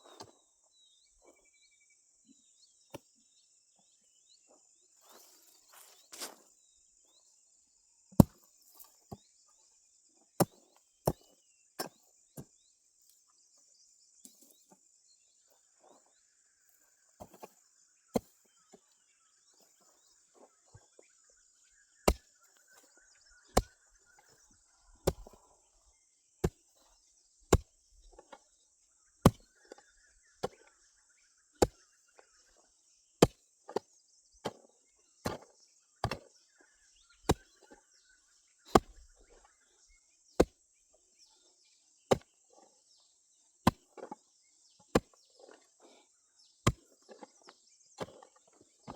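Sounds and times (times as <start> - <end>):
hand tool chopping: 8.2 - 8.4, 10.4 - 12.5, 22.0 - 23.8, 25.0 - 25.4, 26.4 - 26.6, 27.5 - 27.8, 29.2 - 29.8, 30.4 - 30.6, 31.6 - 31.8, 33.2 - 33.8, 34.4 - 36.3, 37.3 - 37.8, 38.7 - 39.1, 40.4 - 40.6, 42.1 - 42.3, 43.6 - 44.2, 44.9 - 45.6, 46.6 - 48.3.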